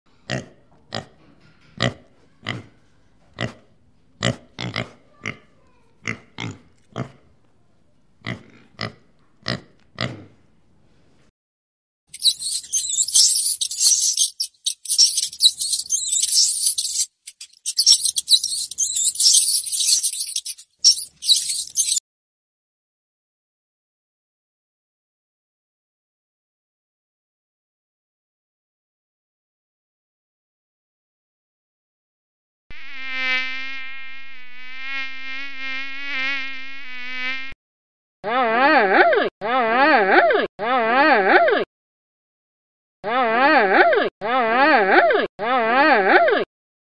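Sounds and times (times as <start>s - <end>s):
loud wavering pitched call: 12.2s - 22.0s
mosquitoes buzzing: 32.7s - 37.6s.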